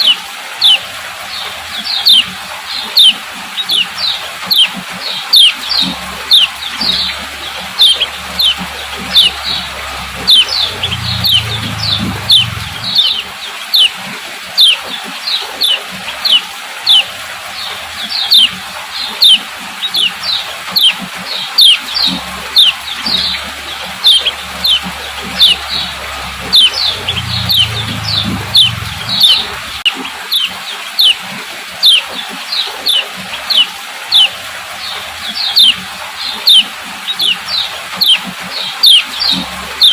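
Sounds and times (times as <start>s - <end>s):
bird chirps: 1.9s - 2.3s, 3.0s - 13.9s, 14.6s - 14.8s, 15.6s - 17.1s, 18.1s - 18.5s, 19.1s - 31.2s, 31.8s - 34.4s, 35.3s - 39.9s
low rumble: 6.7s - 13.2s, 23.0s - 29.9s.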